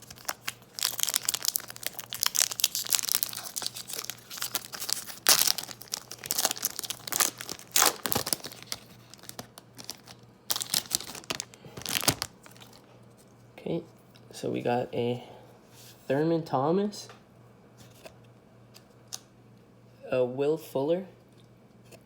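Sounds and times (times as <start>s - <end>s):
cellophane wrapper tearing and crinkling: 0.0s - 12.9s.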